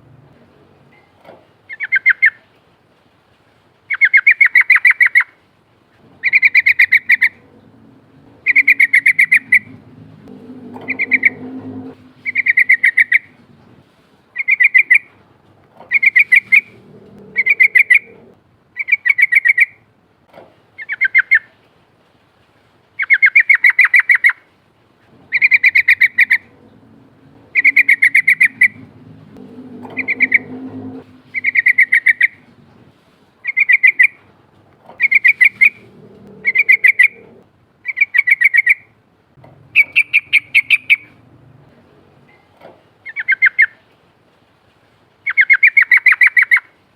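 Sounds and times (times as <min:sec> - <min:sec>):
bulbul bubbling song: 0:08.4 - 0:09.8, 0:12.2 - 0:13.4, 0:15.9 - 0:18.2, 0:27.5 - 0:28.9, 0:31.3 - 0:32.4.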